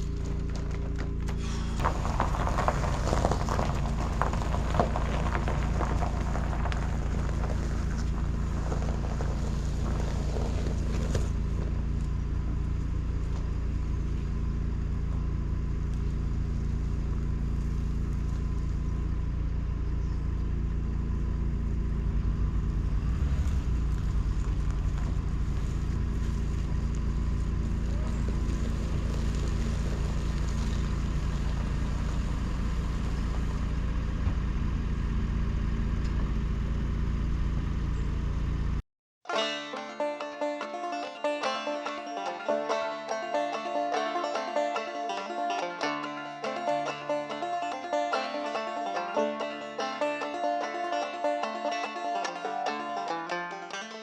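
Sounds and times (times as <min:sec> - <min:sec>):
engine running steadily: 0:00.0 - 0:38.8, 0:40.8 - 0:54.0.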